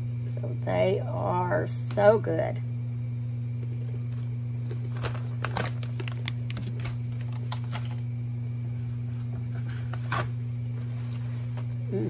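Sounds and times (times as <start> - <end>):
low electrical hum: 0.0 - 12.0
crisp snack crunching: 4.6 - 8.0.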